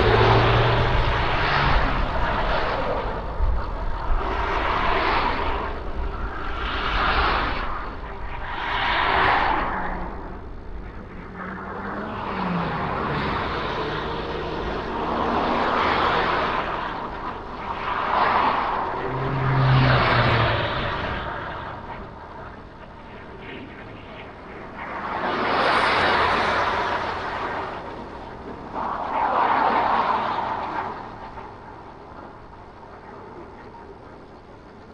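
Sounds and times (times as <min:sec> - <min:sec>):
road traffic passing: 0:00.0 - 0:03.6, 0:11.4 - 0:23.4
engine hum: 0:00.0 - 0:08.1, 0:09.5 - 0:34.9.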